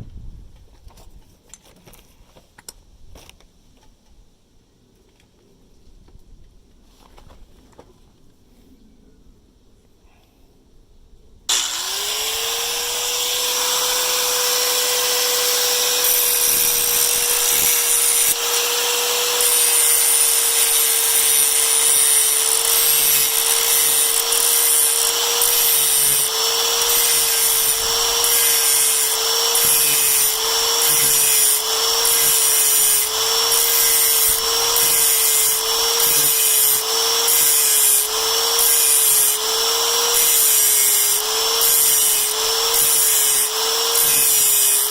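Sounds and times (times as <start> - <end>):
metal rod scraping on grinder: 11.5 - 44.9
power tool motor running: 11.5 - 44.9.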